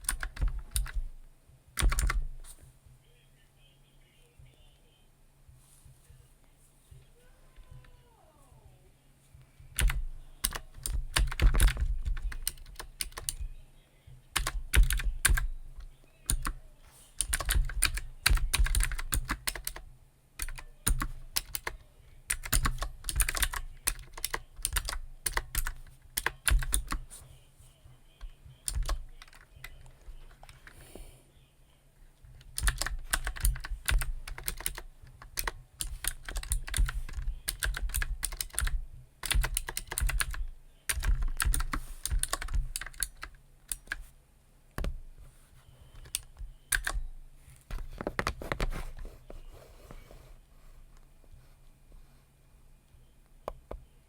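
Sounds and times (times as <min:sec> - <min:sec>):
computer keyboard typing: 0:00.0 - 0:02.5, 0:09.7 - 0:13.5, 0:14.3 - 0:16.6, 0:17.2 - 0:27.2, 0:28.2 - 0:30.8, 0:32.3 - 0:44.1, 0:46.0 - 0:47.1.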